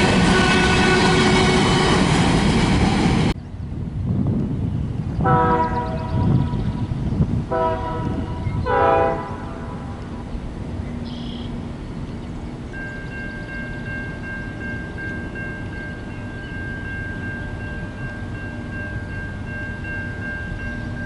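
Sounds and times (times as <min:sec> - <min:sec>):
locomotive air horn blasts: 0:00.0 - 0:02.1, 0:05.2 - 0:06.5, 0:07.5 - 0:10.1
train wheel and rail noise: 0:00.0 - 0:21.0.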